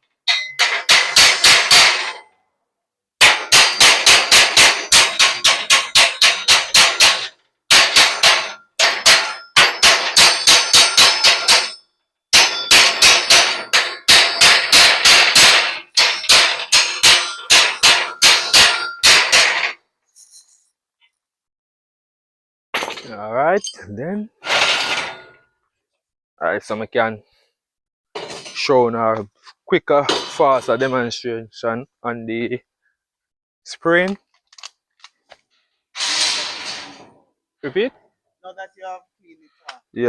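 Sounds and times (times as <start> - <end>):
hammer striking metal: 0.3 - 2.3, 3.2 - 19.8.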